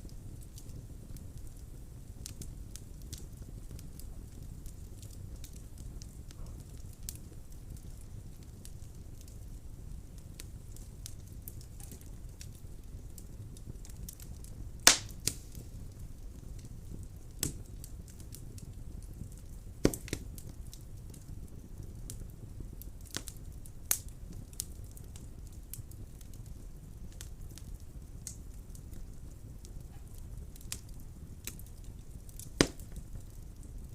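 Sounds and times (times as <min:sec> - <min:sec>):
wood fire crackling and popping: 0:00.0 - 0:33.9.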